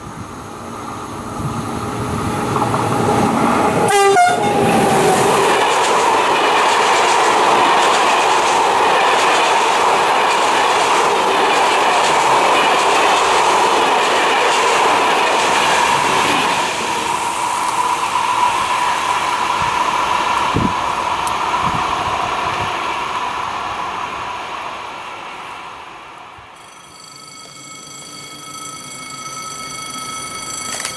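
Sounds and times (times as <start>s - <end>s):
train wheels clattering on rails: 2.2s - 3.9s, 4.6s - 18.3s
ringing tone: 26.6s - 30.9s.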